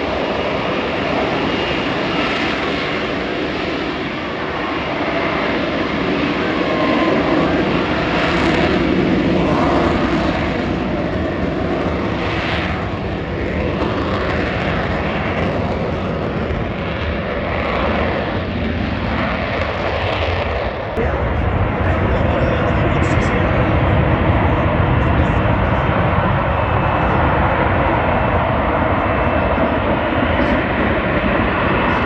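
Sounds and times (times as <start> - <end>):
jet engine roaring: 0.0 - 32.0.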